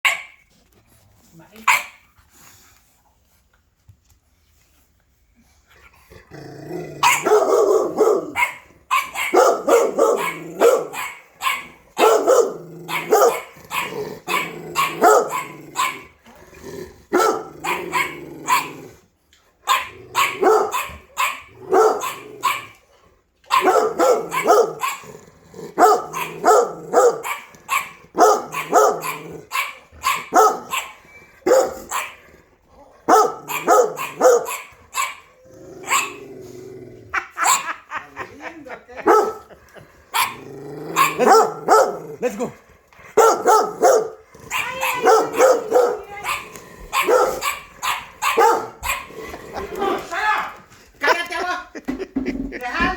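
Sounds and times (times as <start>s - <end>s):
dogs barking: 0.0s - 0.4s, 1.7s - 2.0s, 7.0s - 16.2s, 17.1s - 18.9s, 19.6s - 22.8s, 23.4s - 25.1s, 25.7s - 32.2s, 33.0s - 36.2s, 37.2s - 38.0s, 39.0s - 42.5s, 43.1s - 49.8s.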